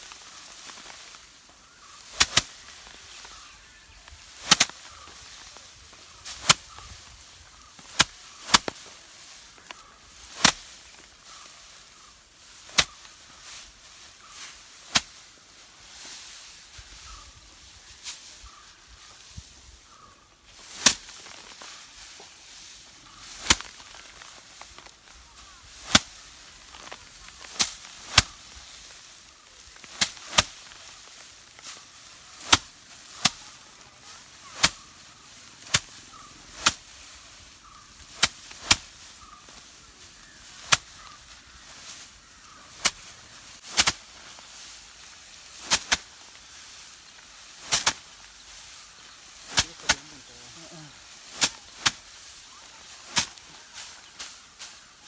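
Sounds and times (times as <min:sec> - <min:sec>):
rice sheaves slapping hard surface: 0:00.0 - 0:03.5, 0:04.1 - 0:18.6, 0:20.6 - 0:55.0.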